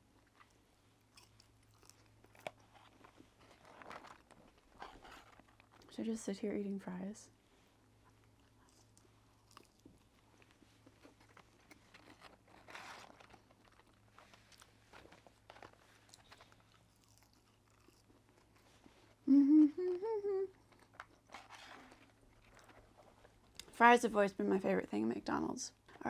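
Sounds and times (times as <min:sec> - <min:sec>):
chewing fries: 0:00.0 - 0:05.9, 0:07.7 - 0:23.8
woman humming: 0:19.2 - 0:20.6.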